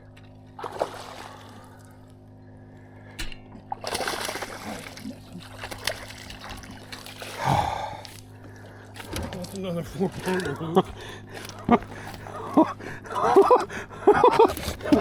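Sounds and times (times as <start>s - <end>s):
steady low hum: 0.0s - 15.0s
water splashing against boat: 0.6s - 2.0s, 3.7s - 15.0s.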